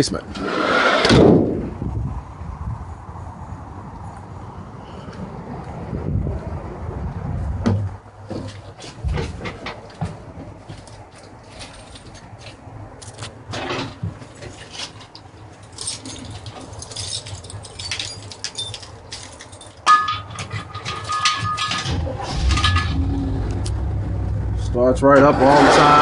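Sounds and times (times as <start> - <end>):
keys jangling: 14.7 - 22.0
engine cranking and starting: 20.8 - 26.0.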